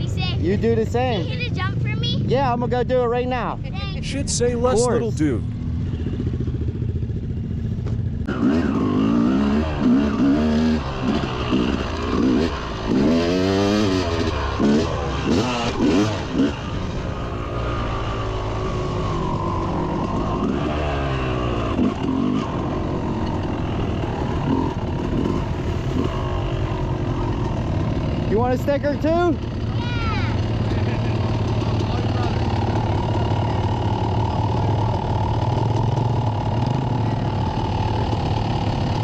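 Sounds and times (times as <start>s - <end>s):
dirt bike engine revving: 8.1s - 39.0s.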